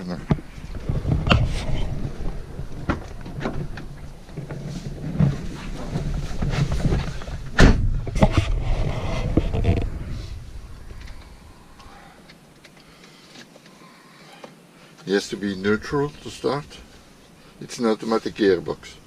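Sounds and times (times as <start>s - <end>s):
loud thump: 7.4s - 8.6s.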